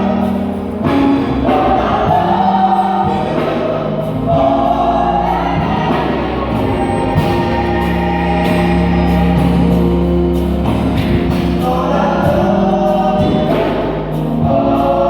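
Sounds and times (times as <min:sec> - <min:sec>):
gospel vocal group singing: 0:00.0 - 0:15.0.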